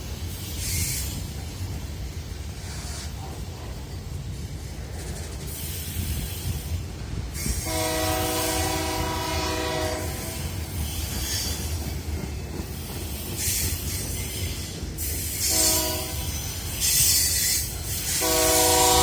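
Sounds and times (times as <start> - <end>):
moving train rumble: 0.0 - 19.0
train horn blast: 7.6 - 10.8, 15.4 - 16.5, 18.1 - 19.0.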